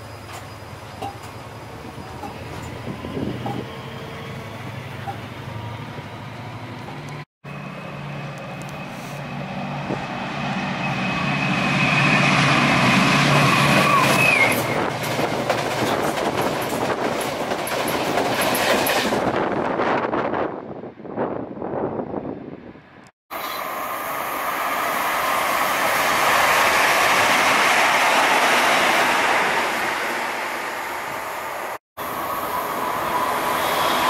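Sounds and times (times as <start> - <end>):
diesel train engine whine: 0.0 - 16.0, 19.3 - 34.0
train wheels clattering over rail joints: 0.2 - 1.4, 14.1 - 19.2.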